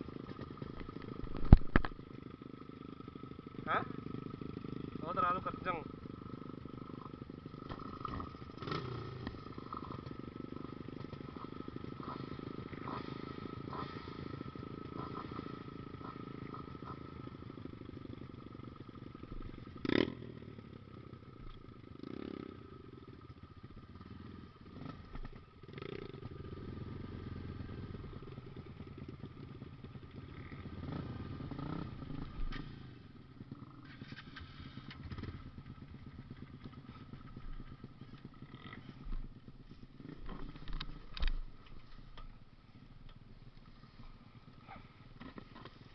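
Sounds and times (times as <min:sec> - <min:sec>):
small engine running: 0:03.6 - 0:17.6, 0:33.6 - 0:42.0.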